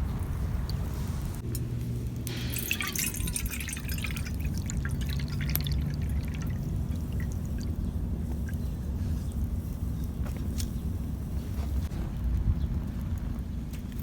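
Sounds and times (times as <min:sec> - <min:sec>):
water poured into a cup: 0:02.3 - 0:07.9
low rumble: 0:11.1 - 0:14.0.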